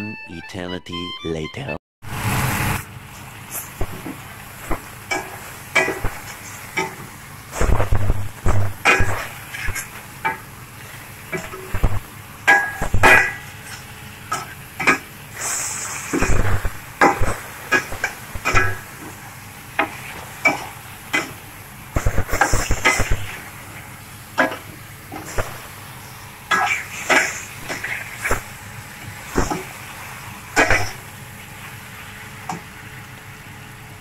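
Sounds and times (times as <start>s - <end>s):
sizzling hisses: 15.3s - 18.6s, 19.9s - 24.0s.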